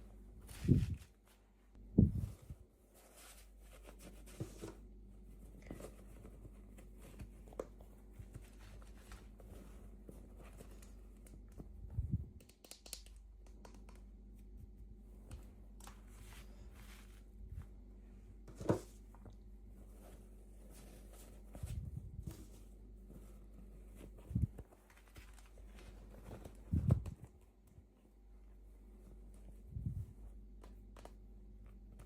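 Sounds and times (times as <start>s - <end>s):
plastic and paper crinkling: 23.2s - 27.4s.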